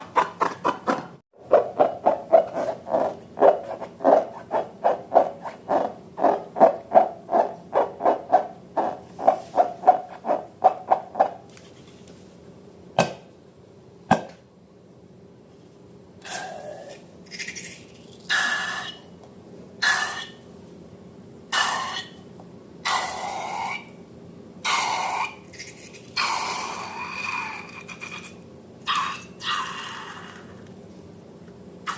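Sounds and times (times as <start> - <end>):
hands rubbing balloons: 0.2 - 11.4.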